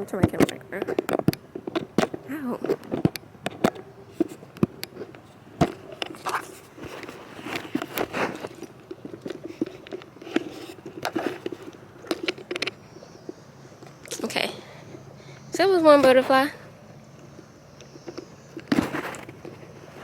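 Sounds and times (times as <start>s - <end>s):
camera handling noise: 0.4s - 14.0s
rubbing against microphone: 4.0s - 12.5s.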